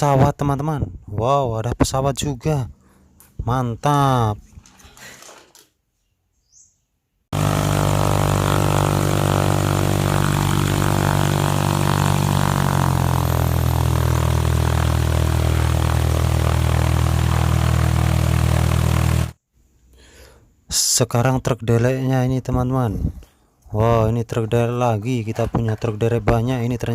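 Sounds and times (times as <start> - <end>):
airplane engine droning: 7.4 - 19.3.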